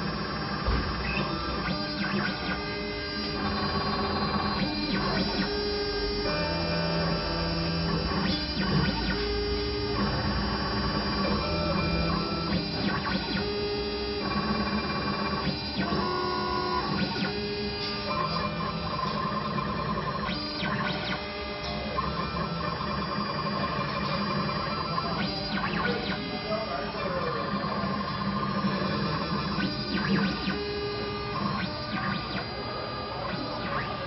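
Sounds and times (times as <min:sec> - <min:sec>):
stepper motors whining: 0:00.0 - 0:34.0.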